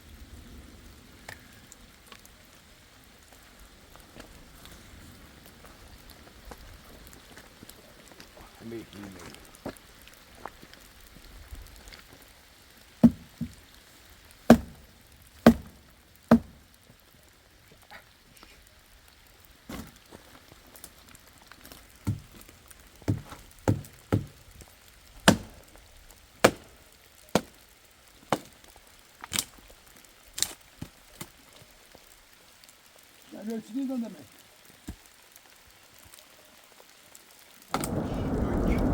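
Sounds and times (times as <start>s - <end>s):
sharp chopping strikes: 13.0s - 13.3s, 14.5s - 14.8s, 15.4s - 16.6s, 22.1s - 22.3s, 23.1s - 24.4s, 25.3s - 25.6s, 26.4s - 26.7s.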